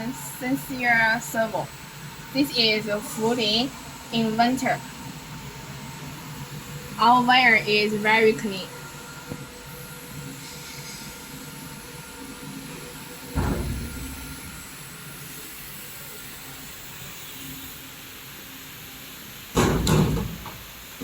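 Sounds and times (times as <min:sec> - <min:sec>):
steady hiss: 0:00.0 - 0:21.0
loud thump: 0:13.3 - 0:14.7.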